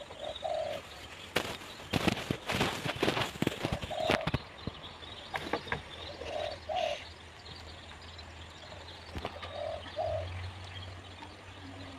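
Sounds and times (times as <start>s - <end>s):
bird cooing: 0.0s - 1.1s, 2.7s - 4.5s, 5.2s - 7.2s, 8.6s - 10.5s.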